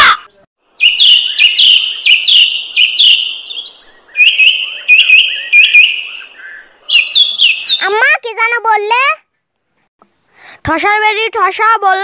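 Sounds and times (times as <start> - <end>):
bird chirping: 0.3 - 8.1.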